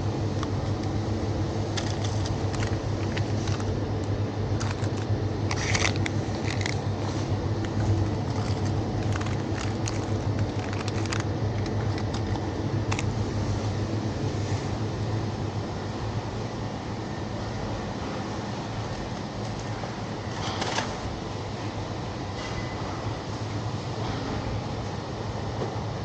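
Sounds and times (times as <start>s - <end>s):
low street rumble: 0.0s - 26.0s
crunching clicks: 0.3s - 13.2s.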